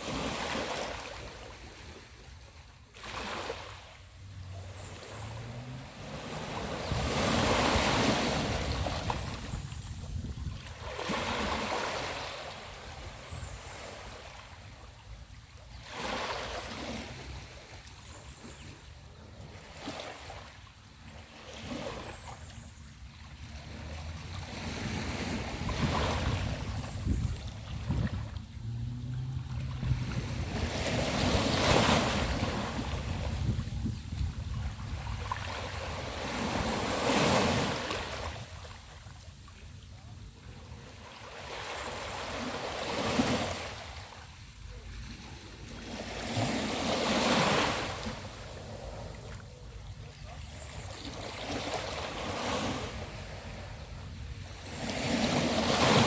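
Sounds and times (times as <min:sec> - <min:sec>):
waves washing up beach: 0:00.0 - 0:56.0
wind rumble on microphone: 0:04.2 - 0:11.8, 0:21.7 - 0:41.1.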